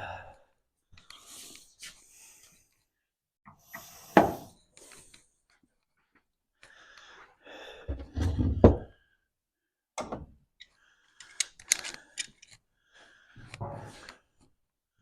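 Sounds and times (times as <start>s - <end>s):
tools clicking and tapping: 10.0s - 12.6s.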